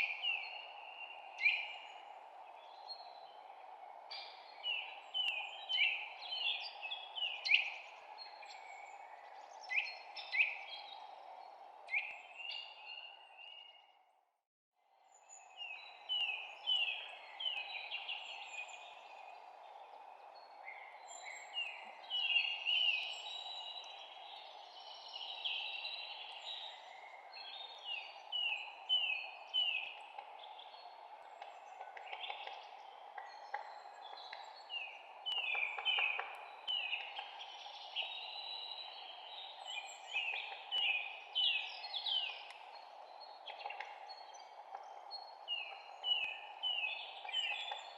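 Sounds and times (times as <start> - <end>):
songbirds chirping: 0.0 - 14.2, 14.8 - 47.9.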